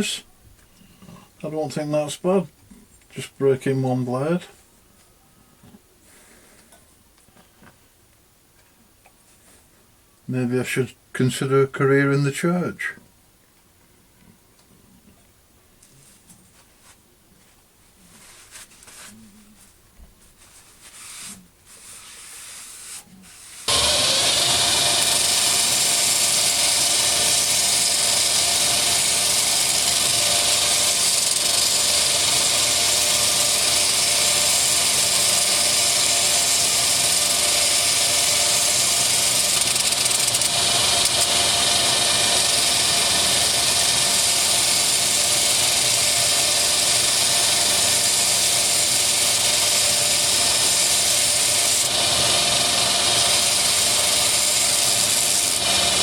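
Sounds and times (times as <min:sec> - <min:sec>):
belt sander grinding metal: 0:23.5 - 0:56.0
motor humming: 0:23.7 - 0:56.0.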